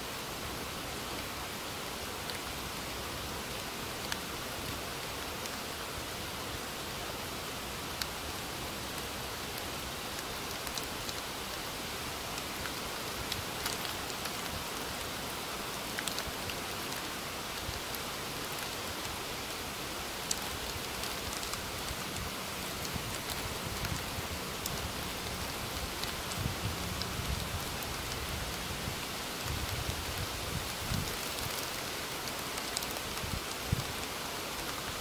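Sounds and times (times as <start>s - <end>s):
steady rain: 0.0s - 35.0s
raindrop ticks: 9.0s - 11.7s, 12.3s - 15.1s, 15.7s - 35.0s.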